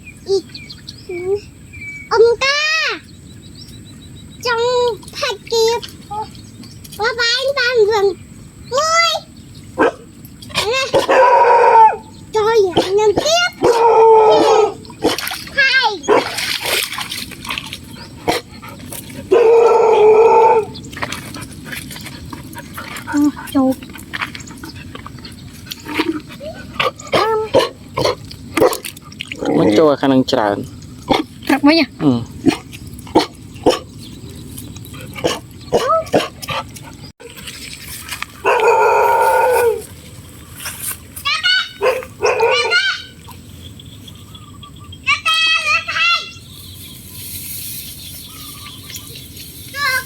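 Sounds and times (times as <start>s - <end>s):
dog howling: 10.8s - 12.1s, 13.6s - 14.8s, 19.3s - 20.8s, 38.4s - 39.9s, 41.8s - 43.2s
dog crying: 12.7s - 14.8s, 26.2s - 28.2s, 41.5s - 43.2s.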